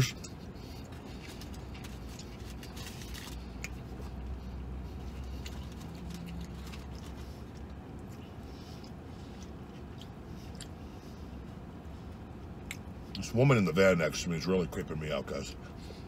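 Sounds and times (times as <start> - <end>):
low steady hum: 0.0 - 16.0
person chewing: 0.1 - 13.2
paper wrapper crinkling: 1.2 - 3.5.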